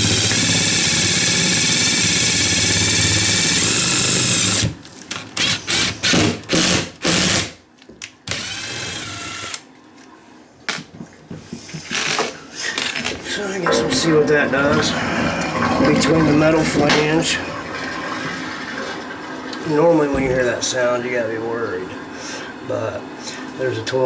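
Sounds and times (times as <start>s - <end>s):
power drill driving screws: 0.0s - 7.6s, 8.3s - 9.6s.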